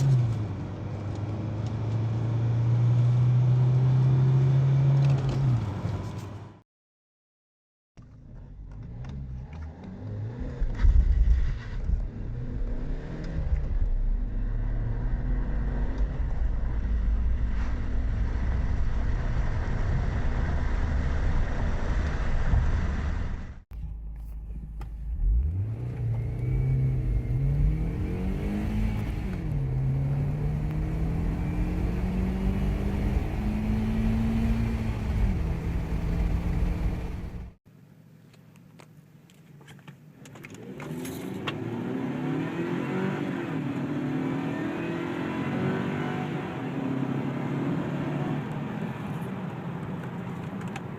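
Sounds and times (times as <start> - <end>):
car engine accelerating hard: 24.7 - 37.6, 40.6 - 49.6.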